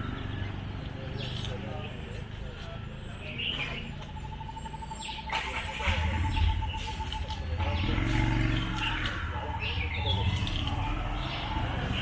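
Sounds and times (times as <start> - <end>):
birds chirping: 0.0 - 12.0
rapid bird trill: 3.3 - 12.0.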